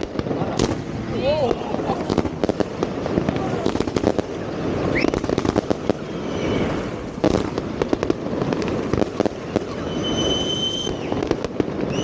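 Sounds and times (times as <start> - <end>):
fireworks bangs and crackles: 0.0 - 12.0
high steady whistle: 6.1 - 6.9, 9.7 - 11.2.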